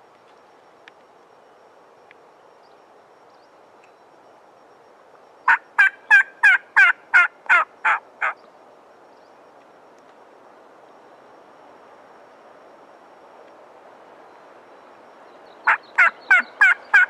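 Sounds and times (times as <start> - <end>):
turkey yelps: 5.5 - 8.4, 15.7 - 17.0.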